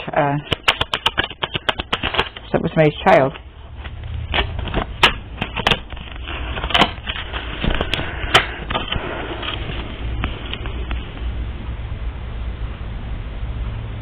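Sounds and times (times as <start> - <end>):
low steady hum: 0.0 - 14.0
cards being shuffled: 0.3 - 2.7, 3.3 - 11.3.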